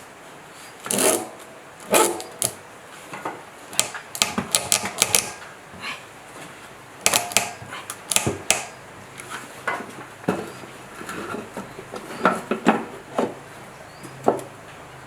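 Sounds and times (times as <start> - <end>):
metal tools clicking and clacking: 7.1 - 8.7.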